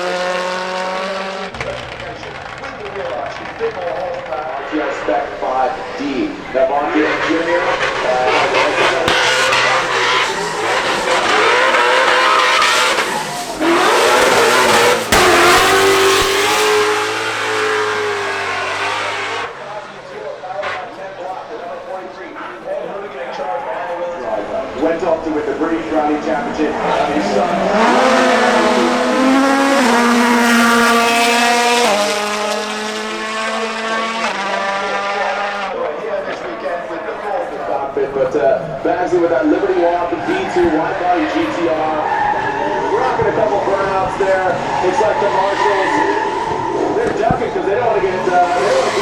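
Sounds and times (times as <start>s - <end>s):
rally car engine revving: 0.0s - 49.0s.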